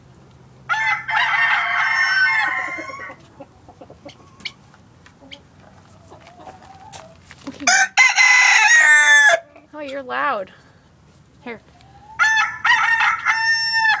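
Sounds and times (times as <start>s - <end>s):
distant rooster crow: 0.7s - 3.2s, 7.7s - 9.5s, 12.2s - 14.0s
rooster crowing: 0.7s - 3.2s, 7.6s - 9.5s, 12.2s - 14.0s
chicken clucking: 2.3s - 7.8s, 11.7s - 12.4s.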